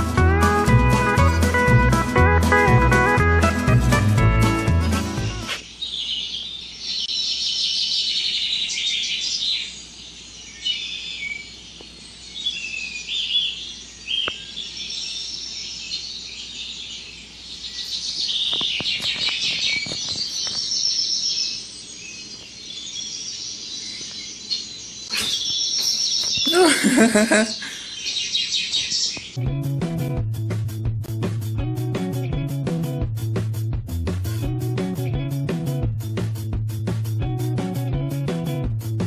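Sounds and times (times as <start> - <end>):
small birds chirping: 5.5 - 29.4.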